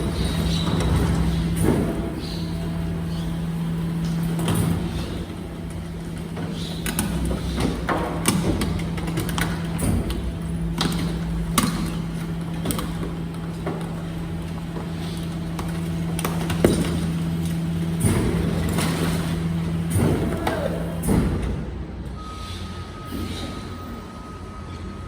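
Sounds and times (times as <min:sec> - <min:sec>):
garbage truck motor humming: 0:00.0 - 0:22.3.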